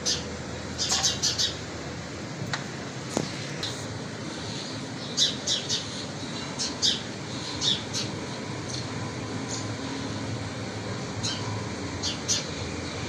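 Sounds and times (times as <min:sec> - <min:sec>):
small birds chirping: 0:04.4 - 0:09.8.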